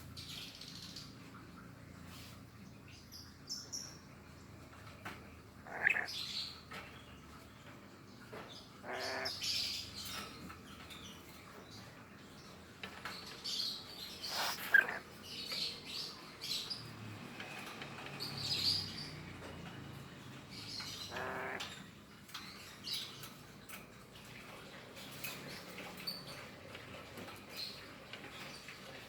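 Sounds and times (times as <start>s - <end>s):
parrot chirping: 5.7s - 6.2s, 8.8s - 9.6s, 14.2s - 15.0s, 20.9s - 21.6s.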